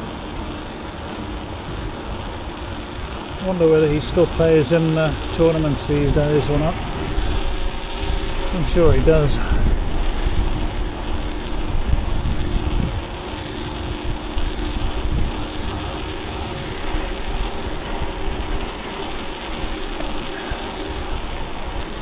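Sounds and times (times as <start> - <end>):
low steady hum: 0.0 - 22.0
road noise: 0.0 - 22.0
wind rushing over microphone: 0.0 - 22.0.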